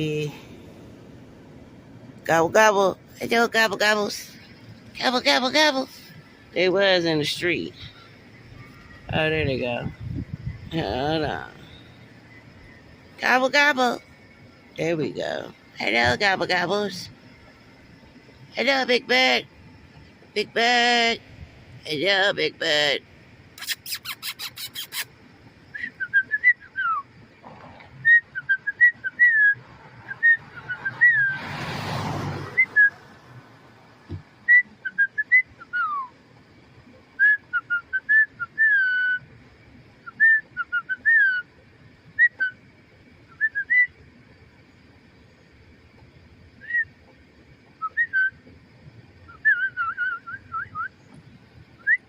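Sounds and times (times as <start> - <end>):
high whistled chirps: 7.4 - 10.7, 11.3 - 14.8, 23.6 - 27.3, 28.0 - 31.4, 32.5 - 33.1, 34.4 - 36.2, 37.2 - 39.4, 40.0 - 41.5, 42.1 - 44.0, 46.5 - 47.1, 47.7 - 48.5, 49.2 - 51.1, 51.8 - 52.0.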